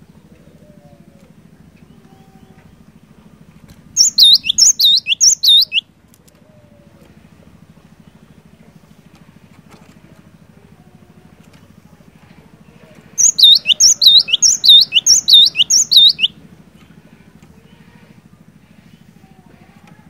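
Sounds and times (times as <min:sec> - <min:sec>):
faint low hum: 0:00.0 - 0:20.0
bird singing high sweeping notes: 0:04.0 - 0:05.8, 0:13.2 - 0:16.3.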